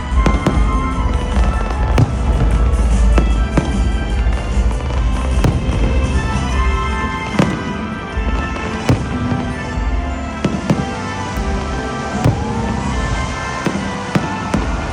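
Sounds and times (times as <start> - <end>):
music with heavy bass: 0.0 - 7.6
fireworks bangs: 0.0 - 14.9.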